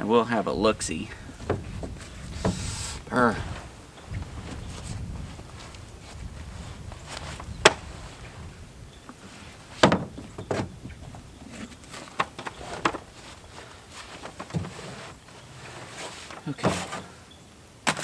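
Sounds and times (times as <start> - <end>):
knocks and bumps in truck bed: 1.1 - 5.3, 7.3 - 8.0, 9.4 - 15.1, 16.3 - 17.1.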